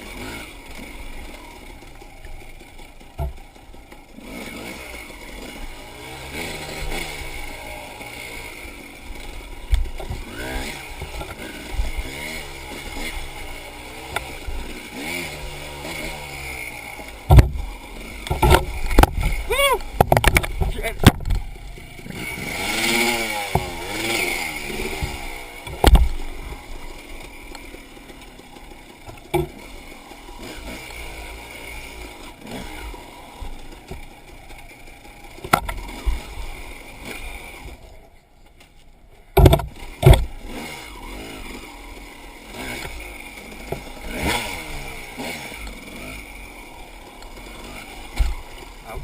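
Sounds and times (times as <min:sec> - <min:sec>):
dirt bike engine revving: 0:00.0 - 0:38.3, 0:39.0 - 0:49.0
sharp knocks and clatter: 0:03.1 - 0:03.6, 0:17.2 - 0:21.5, 0:23.4 - 0:24.2, 0:24.9 - 0:26.3, 0:29.0 - 0:29.7, 0:35.4 - 0:36.2, 0:39.3 - 0:40.3.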